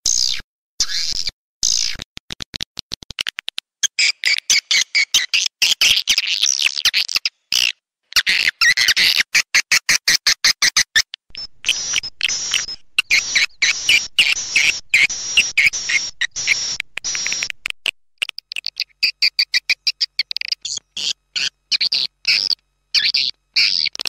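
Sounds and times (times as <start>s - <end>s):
rapid high twittering chirps: 3.8s - 24.0s
quick short clicks: 15.4s - 18.8s.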